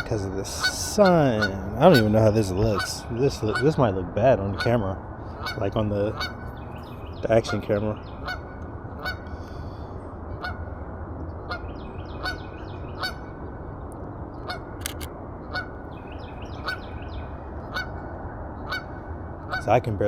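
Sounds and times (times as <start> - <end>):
geese honking: 0.0 - 3.8, 4.5 - 6.4.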